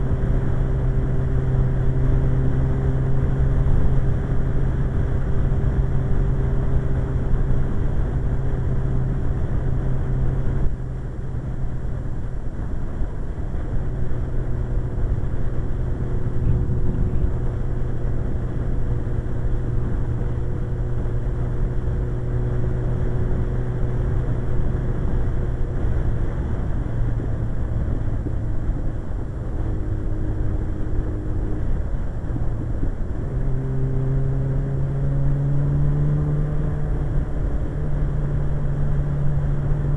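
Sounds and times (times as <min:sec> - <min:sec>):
motorcycle engine cruising: 0:00.0 - 0:39.9
wind rush: 0:12.6 - 0:33.4.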